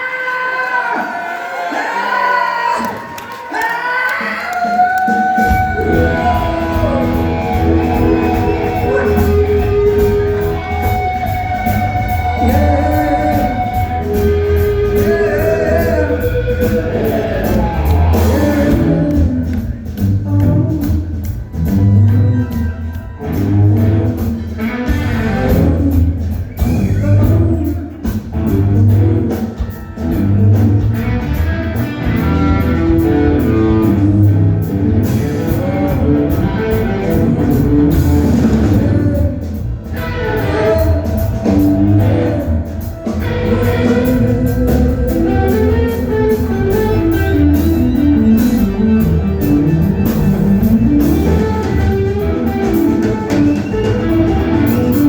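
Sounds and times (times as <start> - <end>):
electric guitar: 4.1 - 55.0
bass pulse: 5.5 - 22.4, 30.0 - 55.0.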